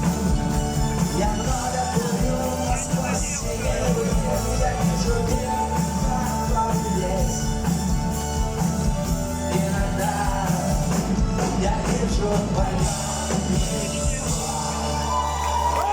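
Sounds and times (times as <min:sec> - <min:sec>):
rock band playing live: 0:00.0 - 0:15.9
person singing: 0:00.9 - 0:07.7.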